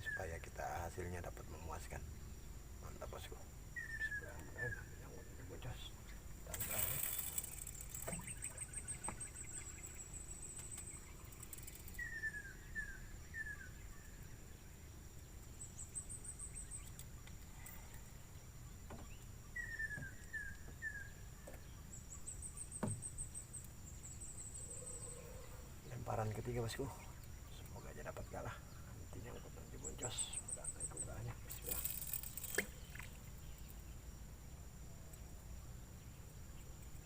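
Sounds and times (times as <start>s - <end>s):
high-pitched insect drone: 6.5s - 13.6s, 29.1s - 33.7s.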